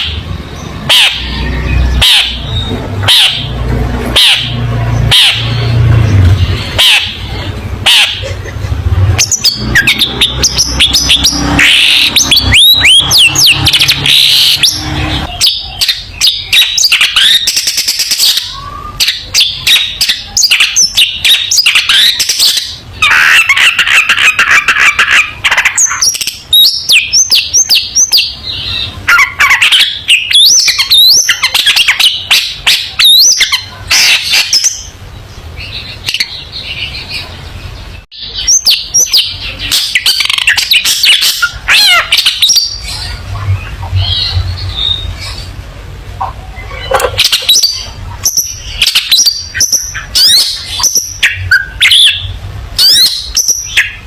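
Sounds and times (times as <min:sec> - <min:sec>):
shrike singing harsh chattering: 0:00.0 - 0:37.3.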